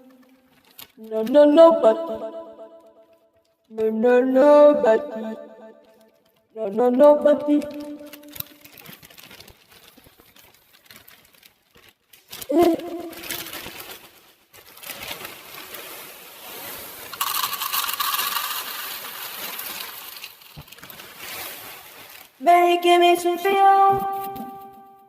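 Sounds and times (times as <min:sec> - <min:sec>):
cereal pouring into bowl: 0:15.0 - 0:22.1.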